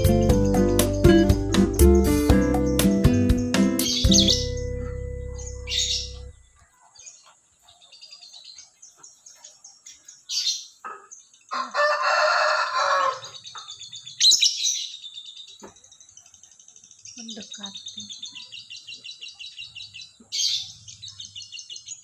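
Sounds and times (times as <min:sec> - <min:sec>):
lovebird chirping: 0:00.0 - 0:11.7, 0:13.2 - 0:22.0
rooster crowing: 0:11.5 - 0:13.4.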